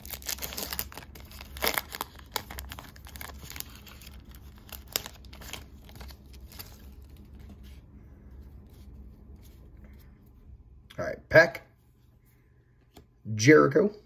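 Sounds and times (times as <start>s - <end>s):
plastic wrapper crinkling and tearing: 0.0s - 7.6s.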